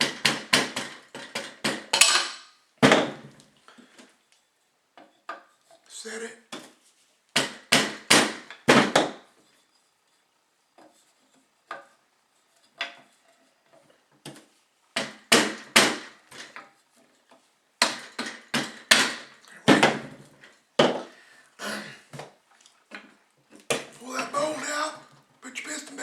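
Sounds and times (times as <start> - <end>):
tools knocking on stapler parts: 0.0 - 3.4, 7.3 - 9.3, 15.0 - 16.7, 17.8 - 21.2.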